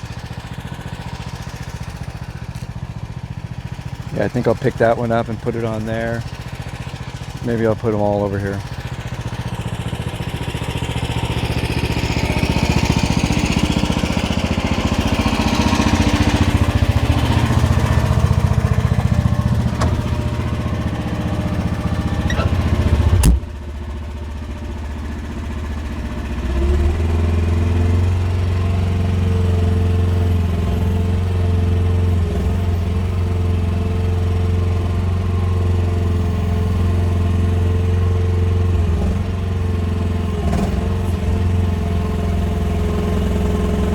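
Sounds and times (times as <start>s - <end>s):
mini excavator engine running: 0.0s - 43.9s
hydraulics working: 15.4s - 23.5s.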